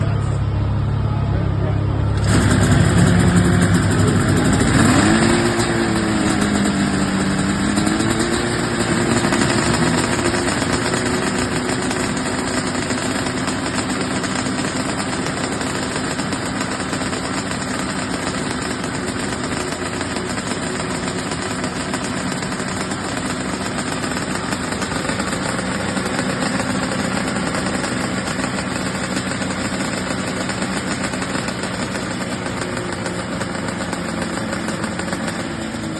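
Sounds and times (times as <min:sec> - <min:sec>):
tractor engine at full throttle: 0:00.0 - 0:35.9.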